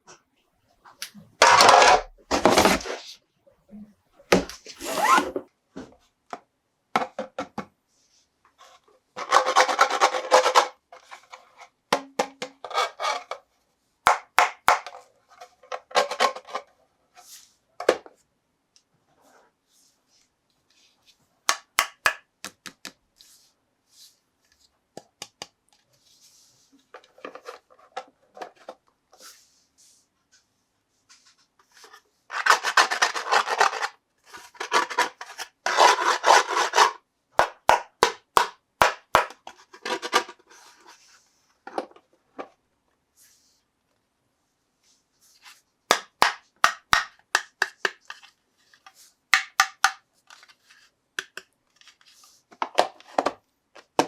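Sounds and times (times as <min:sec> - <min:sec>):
rubbing or scraping: 0:01.4 - 0:03.2, 0:04.3 - 0:05.4
toy packaging clicks and taps: 0:21.5 - 0:23.0, 0:25.0 - 0:25.6, 0:37.4 - 0:40.2, 0:45.9 - 0:48.3, 0:49.4 - 0:50.4, 0:51.2 - 0:51.6.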